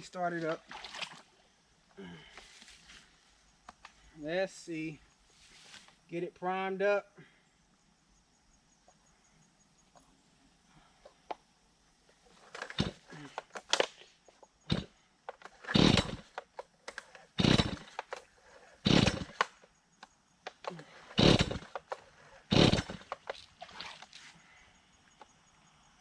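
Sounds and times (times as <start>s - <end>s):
chainsaw starter cord rips: 12.4s - 14.1s, 14.7s - 19.6s, 20.5s - 24.0s
engine turning over: 12.5s - 13.9s, 14.7s - 18.2s, 18.8s - 19.6s, 21.0s - 23.4s.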